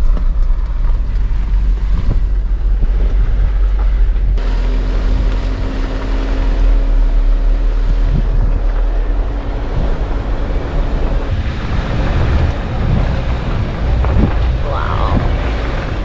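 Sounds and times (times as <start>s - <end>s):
wind buffeting microphone: 0.0s - 6.4s, 7.4s - 16.0s
off-road vehicle driving: 0.0s - 16.0s
steady hum: 3.2s - 15.6s.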